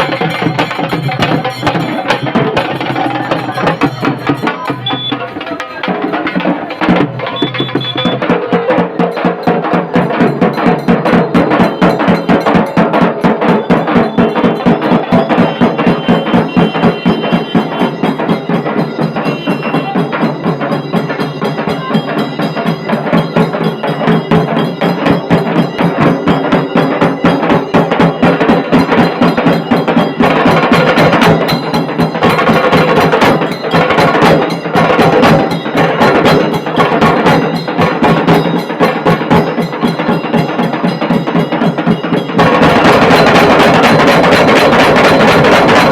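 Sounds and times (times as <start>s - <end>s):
bass drum playing: 0.0s - 6.0s
drums beaten in fast rolls: 0.0s - 45.9s.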